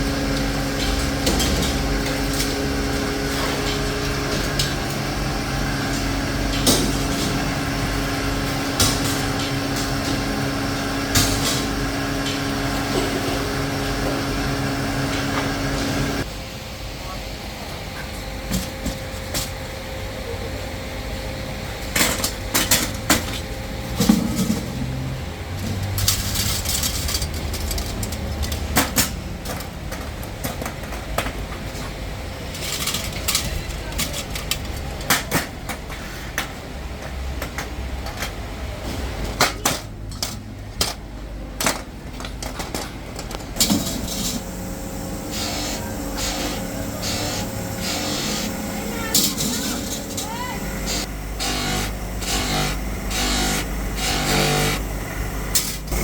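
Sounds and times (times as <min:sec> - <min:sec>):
parts knocking and clattering: 0:00.0 - 0:16.2, 0:21.9 - 0:56.0
factory machinery humming: 0:00.0 - 0:56.0.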